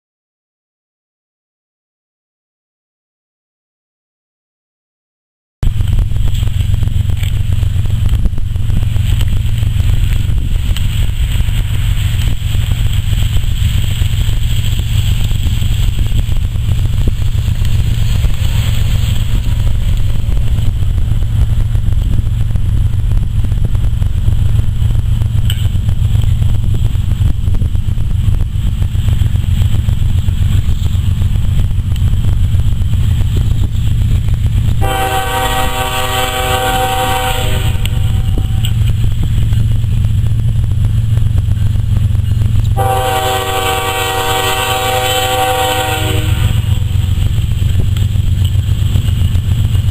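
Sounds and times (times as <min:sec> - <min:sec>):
low rumbling: 0:05.6 - 0:49.9
locomotive horn chord: 0:34.8 - 0:38.9, 0:42.7 - 0:46.8.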